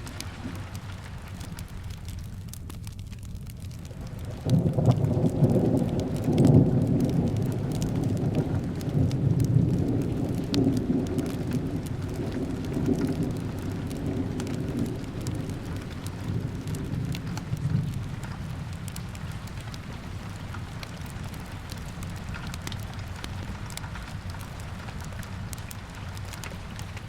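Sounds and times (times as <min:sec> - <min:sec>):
steady rain: 0:00.0 - 0:27.0
wood fire crackling: 0:00.0 - 0:27.0
thunder rolling: 0:03.9 - 0:19.0.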